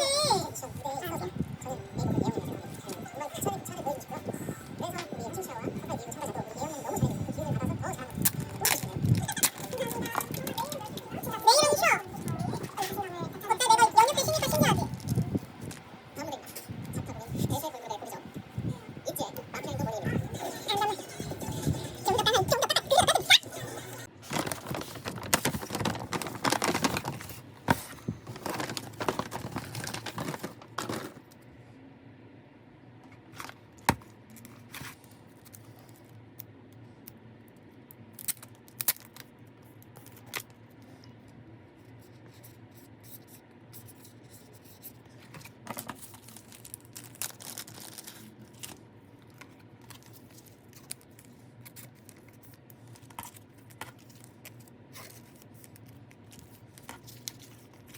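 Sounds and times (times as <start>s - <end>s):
packaging torn and crinkled: 24.2s - 27.4s, 28.3s - 31.0s, 46.0s - 48.8s.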